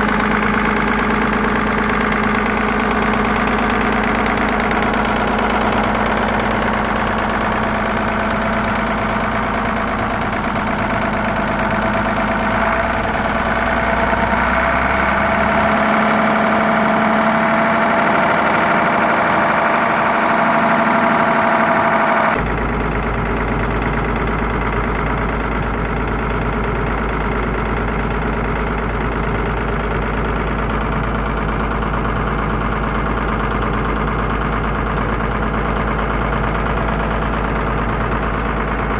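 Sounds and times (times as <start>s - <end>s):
diesel engine idling and revving: 0.0s - 38.9s.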